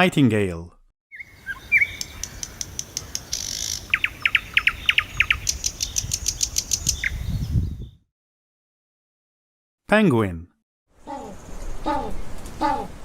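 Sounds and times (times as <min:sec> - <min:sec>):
nightingale singing: 0:01.1 - 0:08.0.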